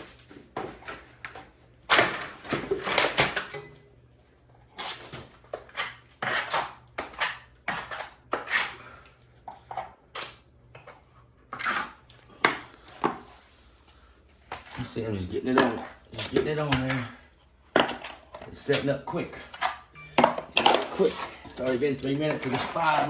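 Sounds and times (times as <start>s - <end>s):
knife scraping mud on wall: 5.6s - 8.9s.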